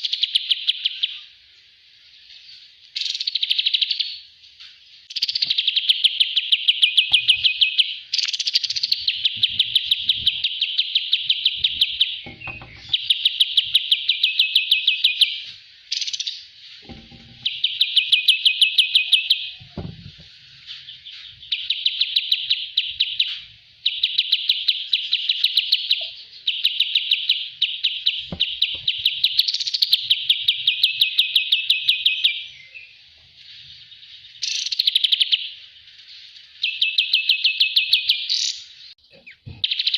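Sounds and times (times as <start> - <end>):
songbird trilling: 5.1 - 19.9, 20.9 - 32.9.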